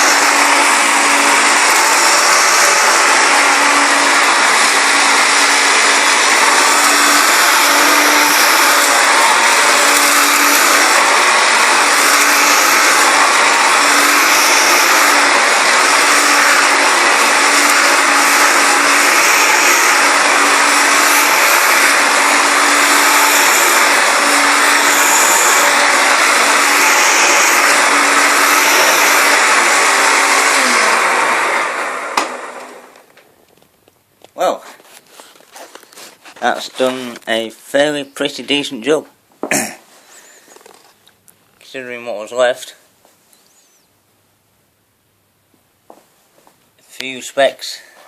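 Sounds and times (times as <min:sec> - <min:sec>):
motor winding down: 0:00.0 - 0:33.1
vacuum cleaner running: 0:00.0 - 0:33.3.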